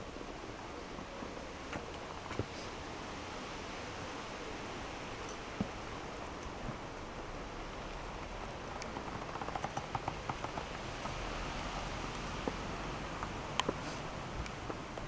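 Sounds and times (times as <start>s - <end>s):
small clicks and ticks: 7.9s - 12.3s
leather clothing rustling: 13.2s - 15.0s.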